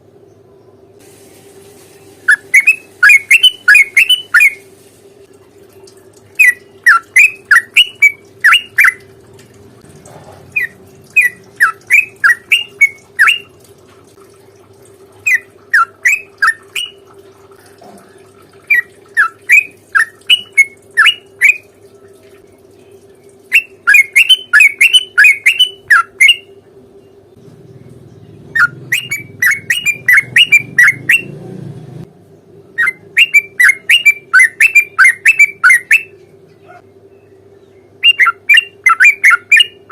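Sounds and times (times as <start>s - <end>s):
faint steady hum: 0.0s - 39.9s
bulbul song: 2.2s - 4.7s, 5.8s - 9.1s, 10.4s - 13.6s, 15.2s - 17.1s, 18.6s - 31.4s, 32.7s - 39.9s.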